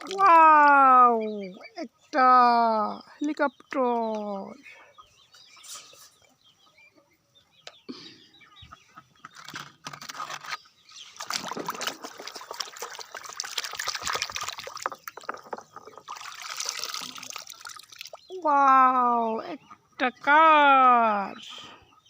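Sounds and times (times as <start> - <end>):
water trickling and splashing: 0.0 - 1.0, 10.1 - 18.9.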